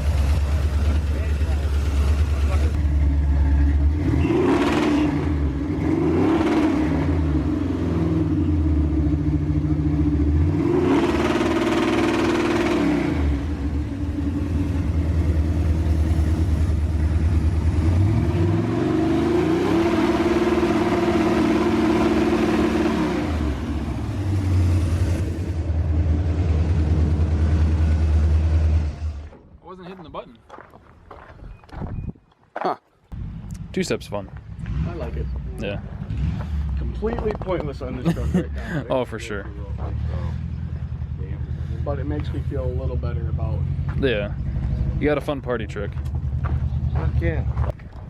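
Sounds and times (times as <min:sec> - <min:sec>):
truck engine revving at limiter: 0:00.0 - 0:29.3, 0:33.2 - 0:41.2.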